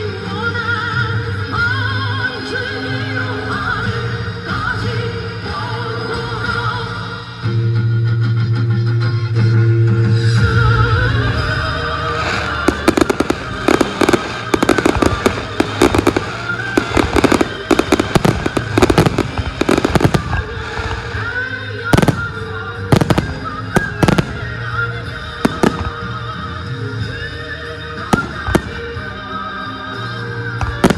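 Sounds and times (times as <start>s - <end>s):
background music: 0.0s - 30.9s
fireworks bursting and crackling: 11.3s - 30.9s.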